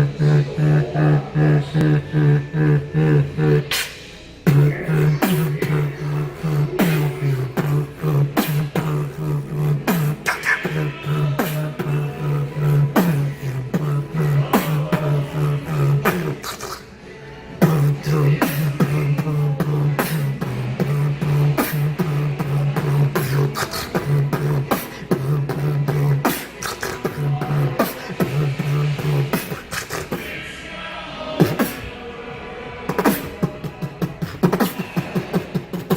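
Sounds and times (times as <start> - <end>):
beatboxing vocal drum clicks: 17.6 - 30.3, 32.9 - 35.9.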